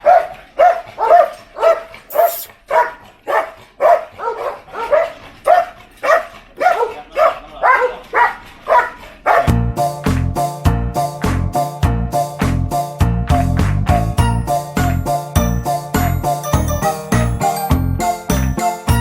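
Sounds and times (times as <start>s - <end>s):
dog barking: 0.0s - 9.6s.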